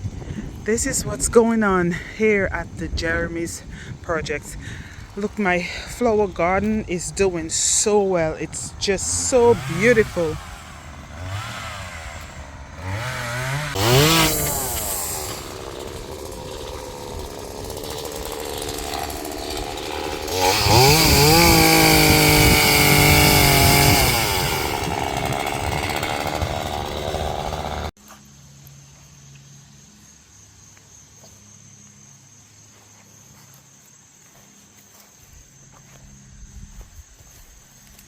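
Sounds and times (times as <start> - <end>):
chainsaw cutting and revving: 4.5 - 28.0.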